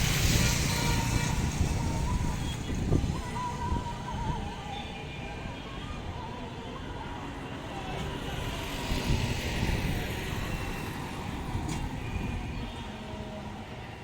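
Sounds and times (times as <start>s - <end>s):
train rumbling over bridge: 0.0s - 4.4s.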